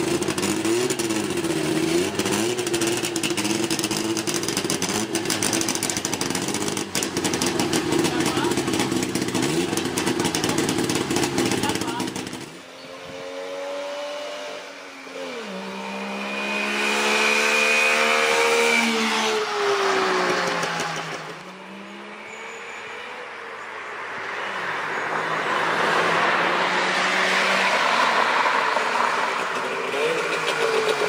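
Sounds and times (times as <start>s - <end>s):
two-stroke car engine revving: 0.0s - 21.4s, 29.0s - 31.0s.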